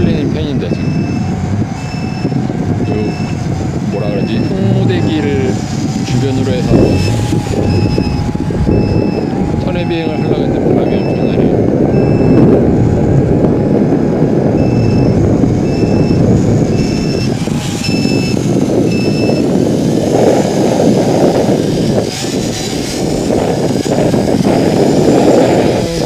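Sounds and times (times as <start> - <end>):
wind buffeting microphone: 0.0 - 26.0
short high electronic beeps: 6.7 - 12.4, 16.8 - 19.4.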